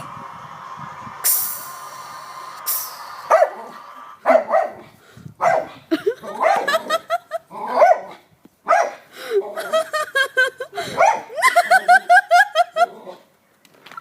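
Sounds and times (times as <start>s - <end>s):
dog barking sharply: 3.3s - 3.6s, 4.2s - 4.8s, 5.4s - 5.7s, 7.8s - 9.0s.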